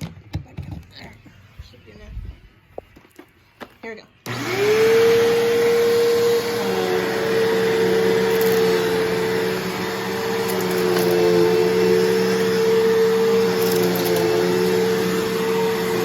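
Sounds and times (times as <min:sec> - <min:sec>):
upright vacuum running: 0:04.2 - 0:16.0.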